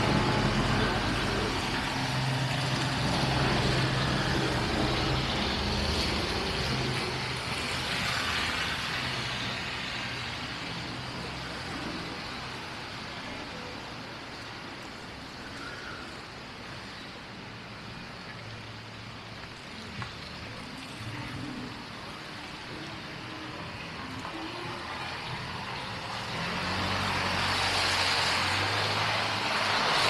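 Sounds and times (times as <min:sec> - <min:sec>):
vehicle engine humming: 0:00.0 - 0:14.0
street traffic noise: 0:00.0 - 0:30.0.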